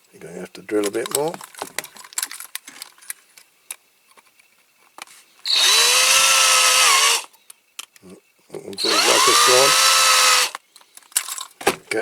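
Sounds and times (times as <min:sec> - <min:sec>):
small electric drill whining: 0:05.4 - 0:07.3, 0:08.8 - 0:10.6.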